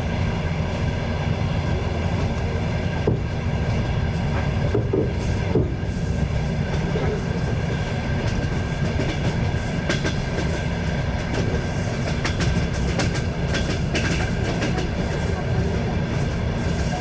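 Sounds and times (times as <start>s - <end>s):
train wheels rumbling on rails: 0.0s - 17.0s
wheels clicking over rail joints: 6.7s - 15.4s.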